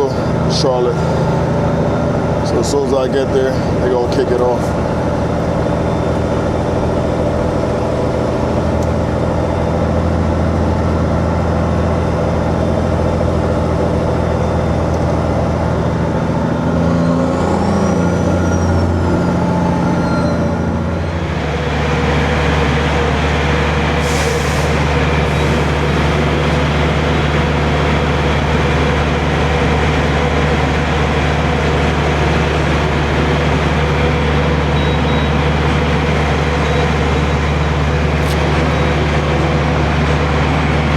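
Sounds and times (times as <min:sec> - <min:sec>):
diesel truck engine running: 0:00.0 - 0:40.9
air brake hiss: 0:24.0 - 0:25.8
thin whistle: 0:34.8 - 0:35.4.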